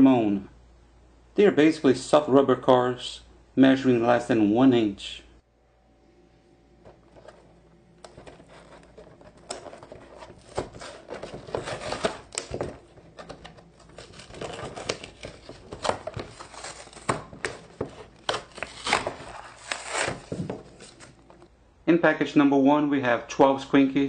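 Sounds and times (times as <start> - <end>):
plastic packaging crinkling: 6.9 - 21.5.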